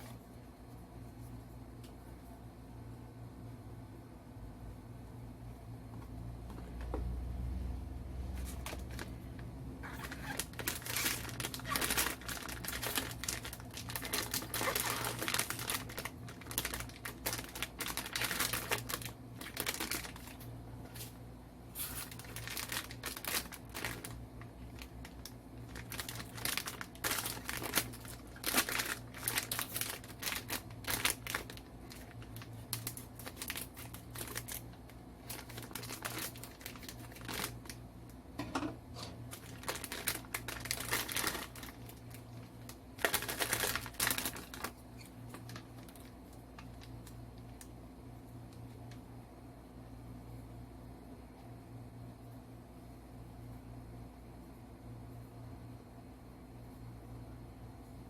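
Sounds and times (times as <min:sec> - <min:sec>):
faint low hum: 0:00.0 - 0:58.0
packaging crinkling and rustling: 0:08.3 - 0:37.8, 0:39.0 - 0:47.7.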